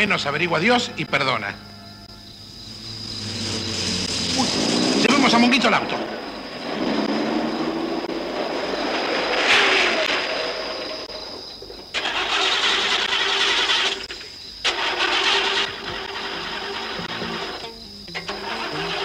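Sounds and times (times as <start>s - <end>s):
car engine running: 2.0s - 19.0s
engine cranking on starter: 3.0s - 19.0s.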